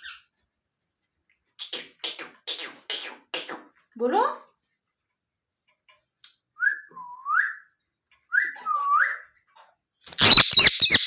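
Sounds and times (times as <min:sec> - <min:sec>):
harsh parrot calls: 0:10.1 - 0:11.0
parrot whistling: 0:10.2 - 0:11.0.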